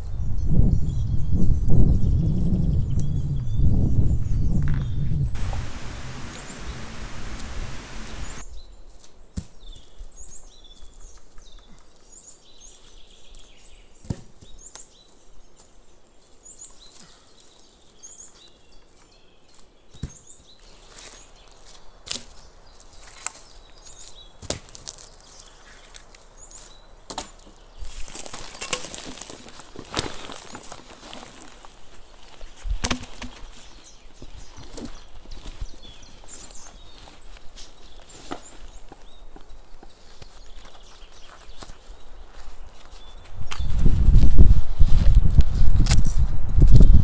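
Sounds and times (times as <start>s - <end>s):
small bird chirping: 4.4s - 8.8s
loud noise: 5.4s - 8.4s.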